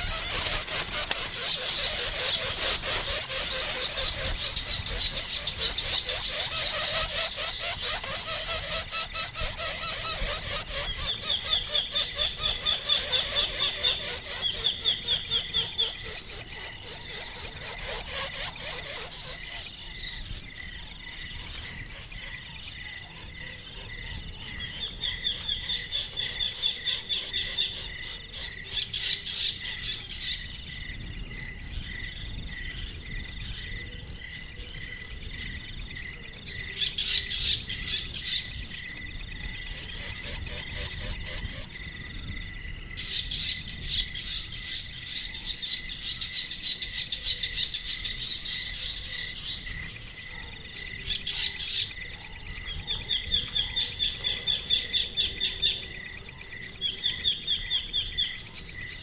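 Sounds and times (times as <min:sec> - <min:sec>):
bird chirps and calls: 0:00.0 - 0:19.6
crickets chirping: 0:00.0 - 0:59.0.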